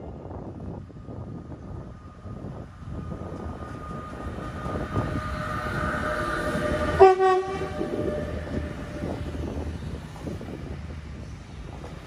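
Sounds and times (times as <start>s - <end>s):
train running noise: 0.0s - 12.0s
train horn blast: 3.8s - 9.2s.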